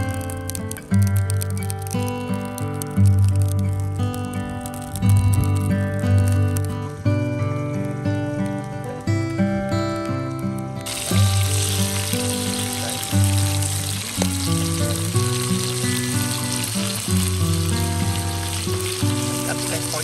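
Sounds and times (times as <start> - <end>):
meat sizzling in hot oil: 0.0 - 4.2, 10.8 - 20.0.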